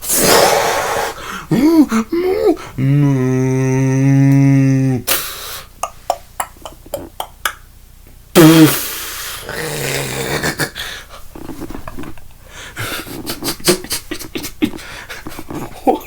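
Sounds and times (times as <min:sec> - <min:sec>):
short vocal burst: 0:00.0 - 0:05.8, 0:08.4 - 0:10.8
person humming: 0:00.2 - 0:05.2, 0:05.8 - 0:07.5, 0:08.4 - 0:10.8
breathy panting: 0:00.4 - 0:03.2, 0:10.8 - 0:11.3, 0:12.4 - 0:15.8
mouth clicks and knocks: 0:05.8 - 0:07.6.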